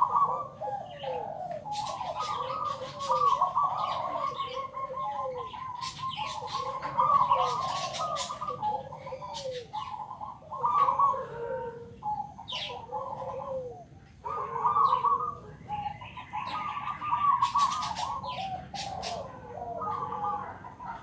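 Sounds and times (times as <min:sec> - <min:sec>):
dove cooing: 0:00.0 - 0:21.0.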